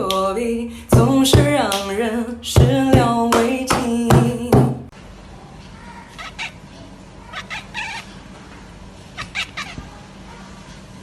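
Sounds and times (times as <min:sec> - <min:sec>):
steady low hum: 0:00.0 - 0:11.0
cat meowing: 0:07.2 - 0:08.1, 0:09.2 - 0:10.0.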